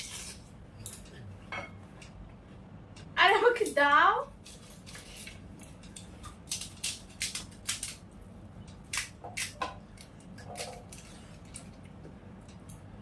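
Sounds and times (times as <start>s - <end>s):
crisp shells cracking and crunching: 4.4s - 11.8s.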